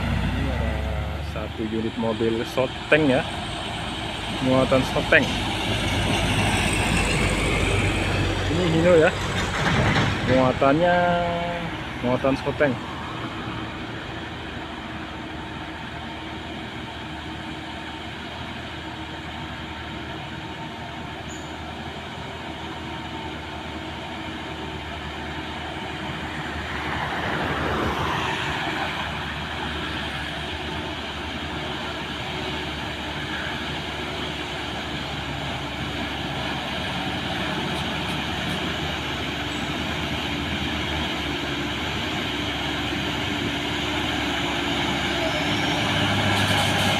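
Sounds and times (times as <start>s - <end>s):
vehicle passing by: 0.0s - 10.8s, 26.1s - 30.3s
diesel truck engine under load: 0.0s - 46.9s.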